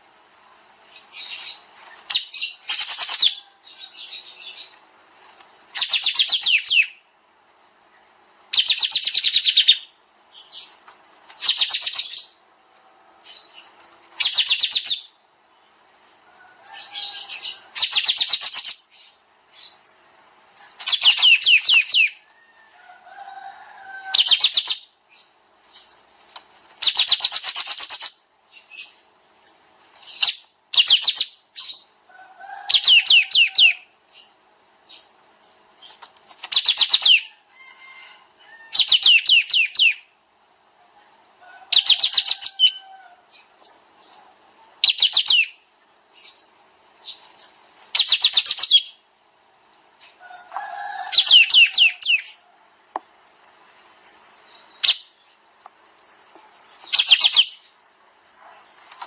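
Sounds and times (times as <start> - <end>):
songbird trilling: 0.9 - 4.8, 5.7 - 7.0, 8.5 - 10.8, 11.4 - 12.4, 13.2 - 15.2, 16.7 - 22.2, 24.0 - 26.2, 26.8 - 32.0, 32.6 - 40.1, 41.7 - 44.2, 44.8 - 49.1, 50.0 - 52.4, 53.4 - 59.0.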